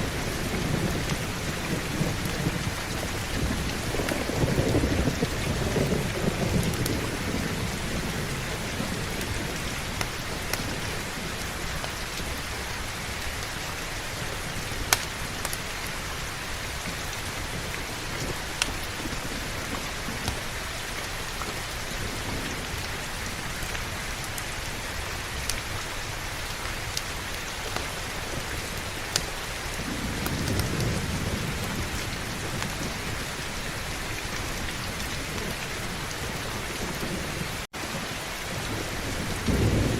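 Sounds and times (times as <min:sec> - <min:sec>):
heavy rain falling: 0:00.0 - 0:39.9
thunder rumbling: 0:00.0 - 0:39.9
sharp crackles: 0:14.2 - 0:36.0.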